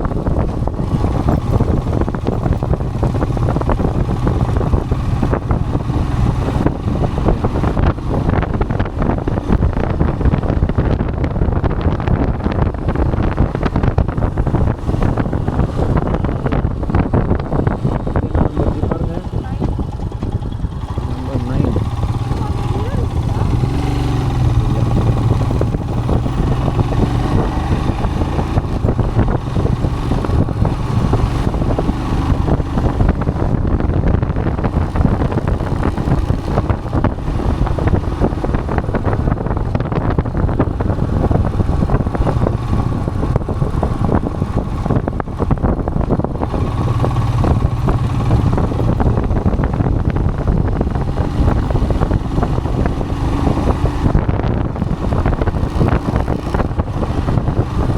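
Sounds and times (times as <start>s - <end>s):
motorcycle engine running: 0.0s - 57.9s
wind buffeting microphone: 0.0s - 57.9s.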